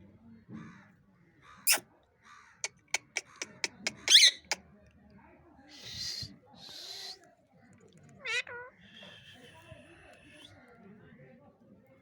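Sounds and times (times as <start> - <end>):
parrot harsh squawk: 2.6 - 4.6, 5.8 - 7.2, 8.2 - 10.5
parrot sharp calls: 2.6 - 4.6.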